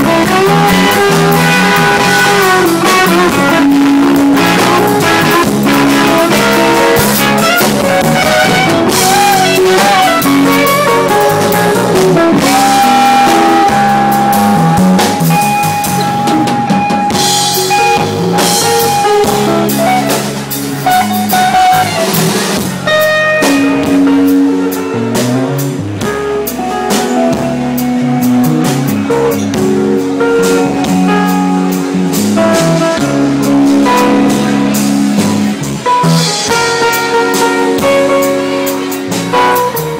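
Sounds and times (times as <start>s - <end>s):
blues-jazz band jam: 0.0s - 39.9s.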